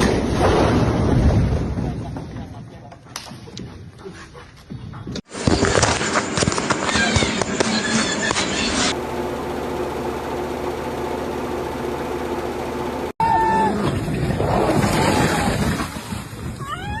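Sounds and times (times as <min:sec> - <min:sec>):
machine and work noise: 0:05.1 - 0:16.2
motor running steadily: 0:05.3 - 0:13.2.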